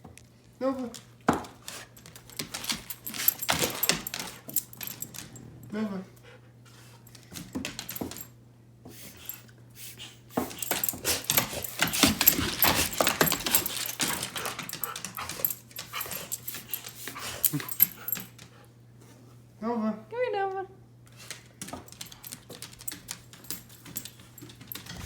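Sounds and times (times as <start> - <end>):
faint low hum: 2.0 - 8.3.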